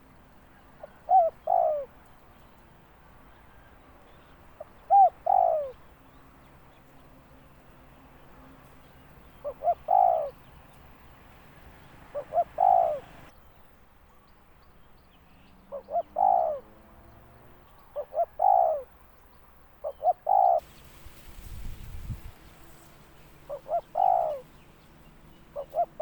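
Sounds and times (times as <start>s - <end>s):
dove cooing: 0.0s - 2.3s, 3.1s - 6.2s, 8.6s - 13.3s, 15.7s - 19.0s, 19.8s - 20.6s, 21.9s - 26.0s.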